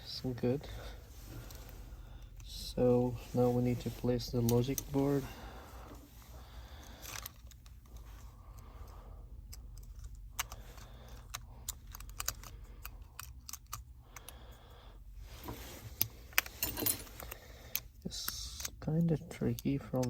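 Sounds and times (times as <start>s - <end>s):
low steady hum: 0.0s - 20.0s
small phone parts clicking: 6.8s - 14.4s.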